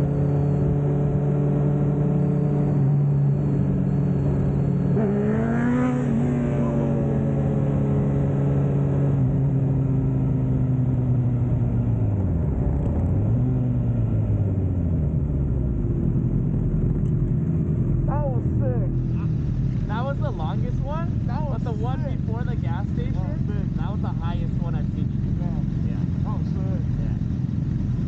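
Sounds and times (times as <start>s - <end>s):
motorcycle engine revving up: 0.0s - 11.4s
motorcycle engine steady: 13.6s - 28.0s.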